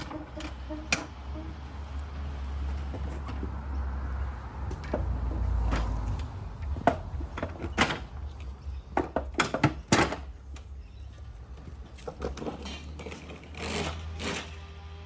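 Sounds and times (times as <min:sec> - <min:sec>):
irregular knocks and clunks: 0:00.0 - 0:10.8.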